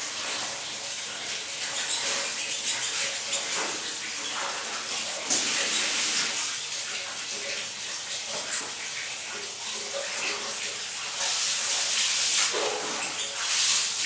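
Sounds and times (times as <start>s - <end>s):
water spraying: 2.0s - 6.7s, 10.5s - 14.0s.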